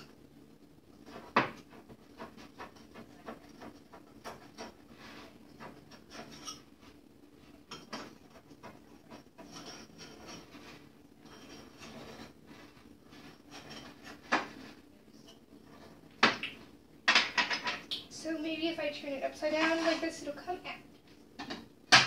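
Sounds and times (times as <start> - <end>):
knife scraping glass bowl: 1.0 - 6.7, 7.7 - 14.3.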